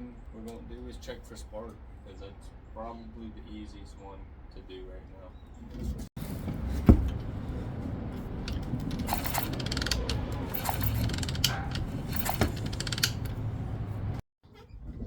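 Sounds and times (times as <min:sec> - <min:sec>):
metallic clicking and ratcheting: 0:08.4 - 0:13.5.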